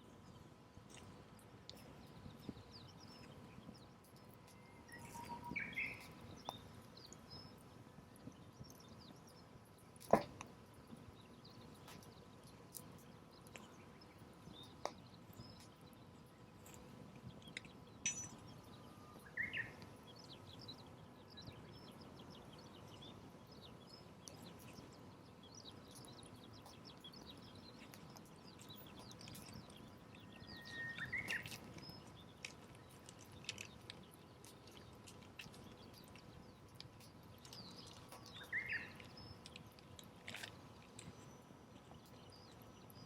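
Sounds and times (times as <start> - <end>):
bird chirps: 2.4 - 7.6, 17.5 - 24.8, 25.5 - 33.9, 37.4 - 39.6.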